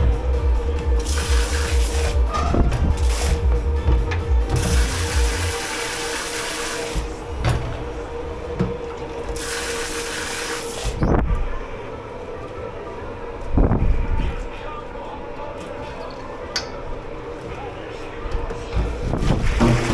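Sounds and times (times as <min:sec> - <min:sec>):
water running in sink: 0:00.0 - 0:11.0, 0:19.2 - 0:19.9
steady machine hum: 0:00.0 - 0:19.9.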